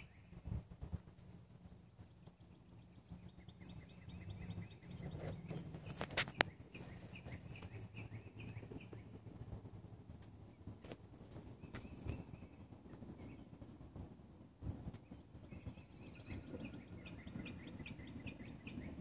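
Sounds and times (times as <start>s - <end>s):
bird chirps: 2.0s - 9.2s, 11.4s - 13.6s, 15.0s - 19.0s.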